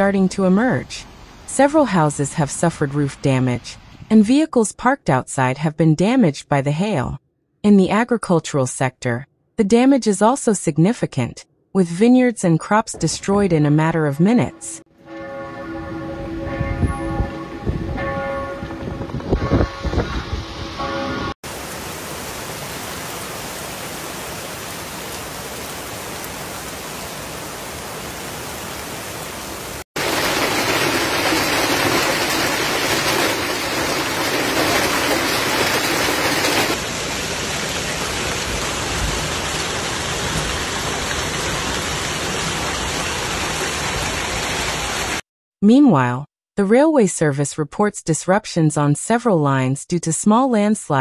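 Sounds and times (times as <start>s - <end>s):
heavy rain pelting down: 21.4s - 45.2s.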